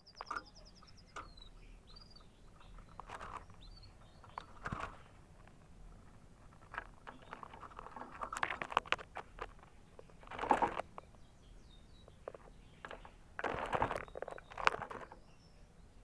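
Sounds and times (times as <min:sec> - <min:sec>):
rustling and sharp clicking: 0:00.0 - 0:11.3, 0:12.0 - 0:15.4
canary chirping: 0:00.0 - 0:16.0.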